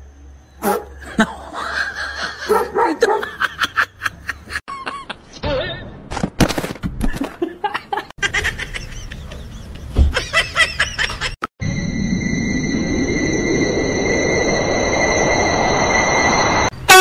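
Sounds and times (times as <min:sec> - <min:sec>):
people laughing: 0:01.1 - 0:05.2, 0:07.4 - 0:11.4.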